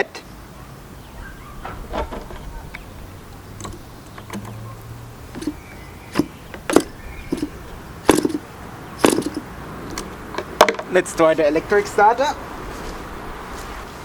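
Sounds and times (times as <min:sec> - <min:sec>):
hands clicking and knocking on engine: 0:03.6 - 0:04.6, 0:05.3 - 0:10.8.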